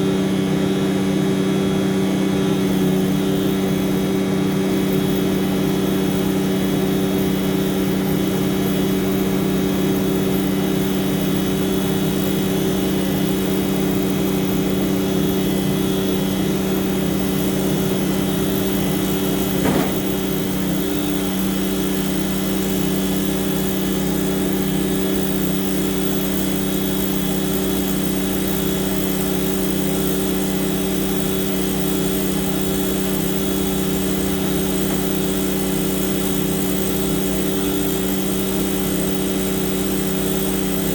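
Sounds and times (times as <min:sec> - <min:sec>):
truck diesel engine running: 0:17.6 - 0:20.6, 0:33.6 - 0:37.3.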